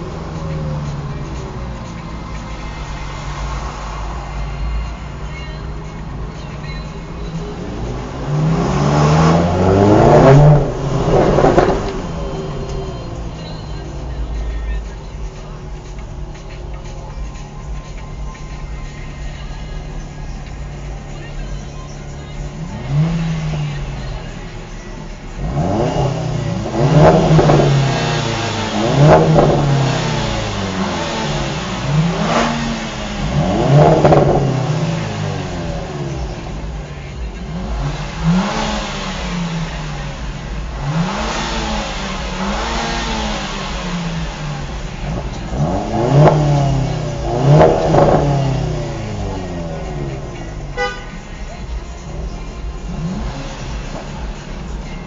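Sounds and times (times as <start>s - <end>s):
car engine revving hard: 0.0s - 17.4s, 18.4s - 55.0s.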